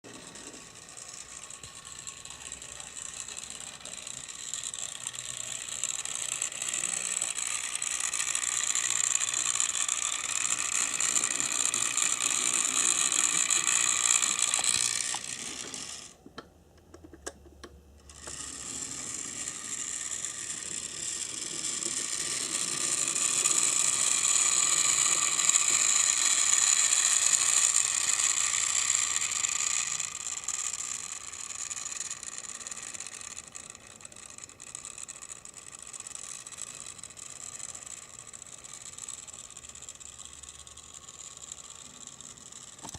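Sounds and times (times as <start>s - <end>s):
model train motor whirring: 0.0s - 16.2s, 18.0s - 42.9s.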